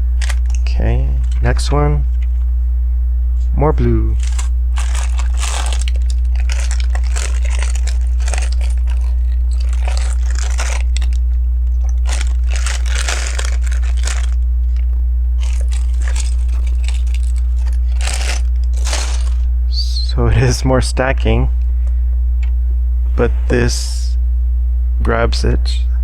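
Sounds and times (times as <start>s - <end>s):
steady low hum: 0.0s - 26.0s
plastic bricks clicking and rattling: 4.2s - 11.2s, 11.9s - 14.4s, 15.4s - 19.4s.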